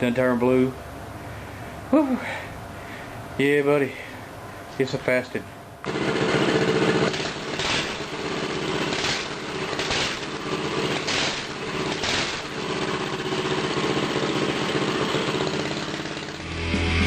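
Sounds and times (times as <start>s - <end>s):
mini bike engine running: 5.9s - 16.8s.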